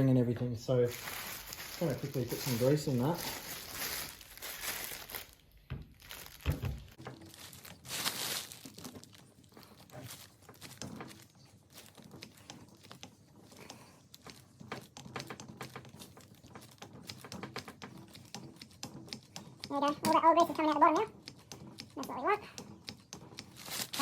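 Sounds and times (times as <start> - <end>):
grease gun clicks and knocks: 11.9 - 20.2.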